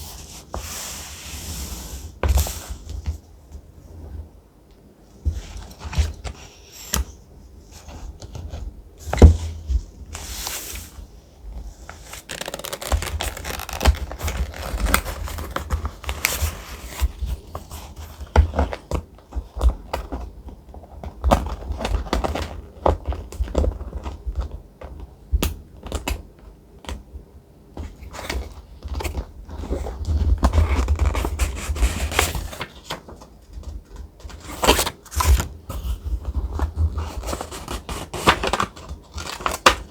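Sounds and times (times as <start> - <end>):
paper rustling and crinkling: 5.3 - 25.0, 27.8 - 39.9.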